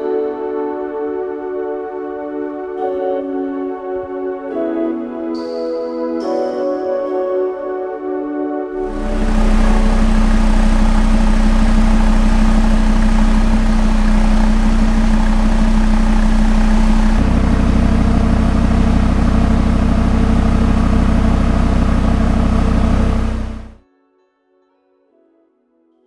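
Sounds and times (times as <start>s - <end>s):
car engine running: 8.8s - 23.8s.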